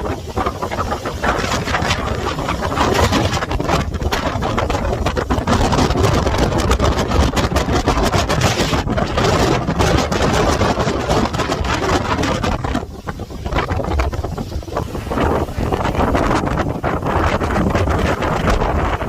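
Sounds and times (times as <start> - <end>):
boat motor running: 0.0 - 19.0
wind buffeting microphone: 0.0 - 19.0.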